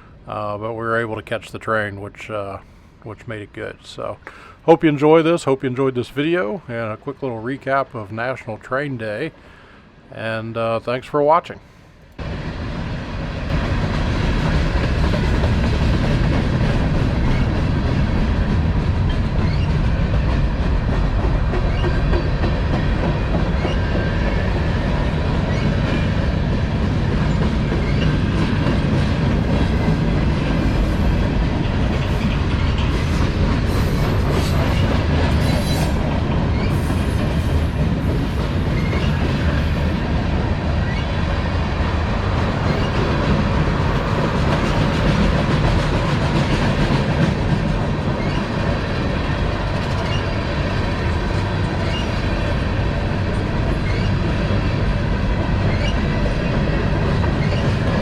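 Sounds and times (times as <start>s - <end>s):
freight train rumbling past: 0.0s - 58.0s
wheels clacking over rail joints: 13.5s - 58.0s
faint high wheel squeals: 50.0s - 50.5s, 51.8s - 52.2s, 53.8s - 54.2s, 55.7s - 56.2s.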